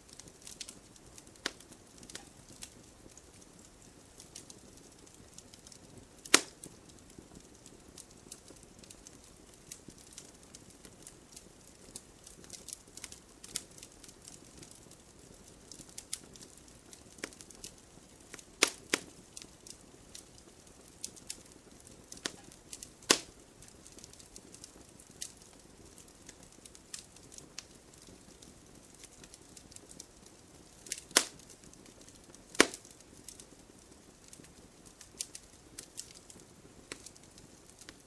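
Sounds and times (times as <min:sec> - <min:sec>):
campfire crackling and popping: 0:00.0 - 0:38.0.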